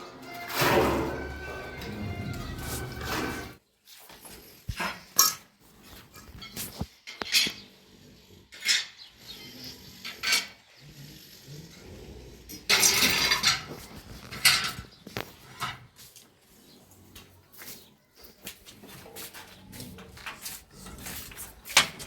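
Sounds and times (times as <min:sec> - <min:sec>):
metal clinks and scrapes: 0:00.0 - 0:03.6, 0:12.7 - 0:16.0.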